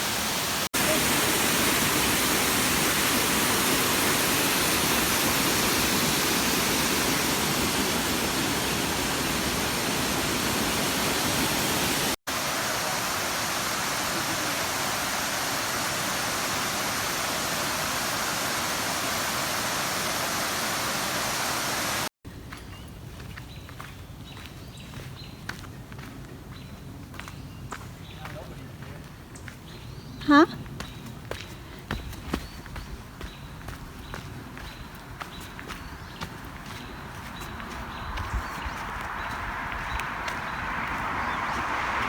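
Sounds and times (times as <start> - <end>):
waterfall rushing: 0.0 - 22.1, 38.7 - 42.0.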